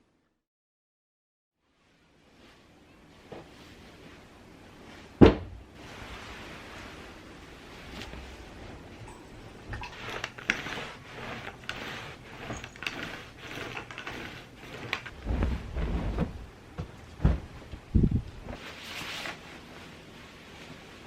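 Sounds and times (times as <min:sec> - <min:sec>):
rustling: 0:05.8 - 0:21.0
heavy low thumps: 0:15.2 - 0:18.6.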